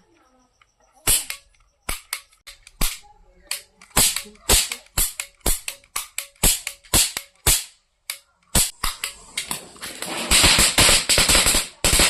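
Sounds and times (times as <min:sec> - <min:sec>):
firecracker caps cracking: 0:01.1 - 0:12.0.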